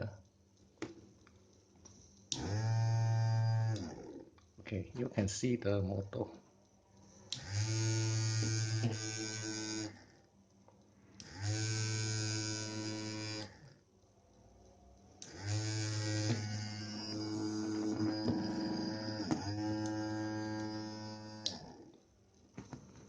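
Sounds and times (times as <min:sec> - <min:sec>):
small electric motor buzzing: 0:02.3 - 0:04.2, 0:07.3 - 0:10.2, 0:11.2 - 0:13.8, 0:15.2 - 0:21.9.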